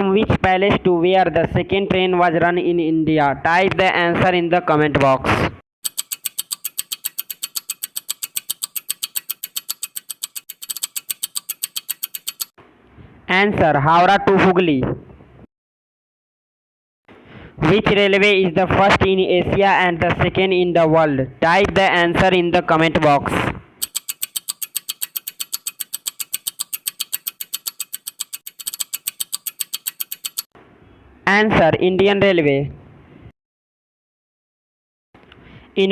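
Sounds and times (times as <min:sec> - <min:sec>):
clock ticking: 0:05.8 - 0:12.5, 0:23.8 - 0:30.5.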